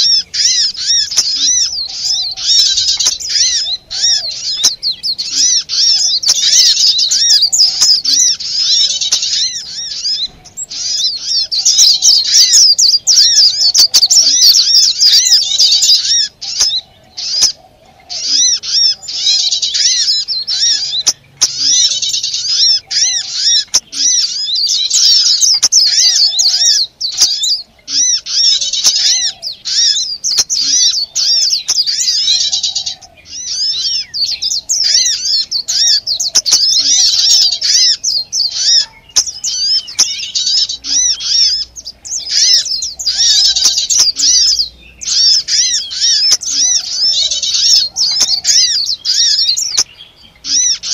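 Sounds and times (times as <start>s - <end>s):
songbirds chirping: 0.0s - 50.9s.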